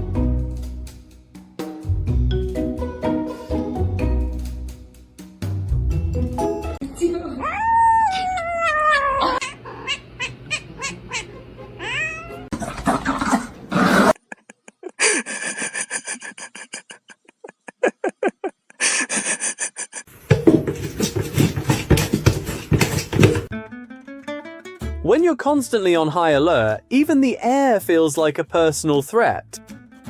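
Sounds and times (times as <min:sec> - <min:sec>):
cat meowing: 0:07.4 - 0:12.5.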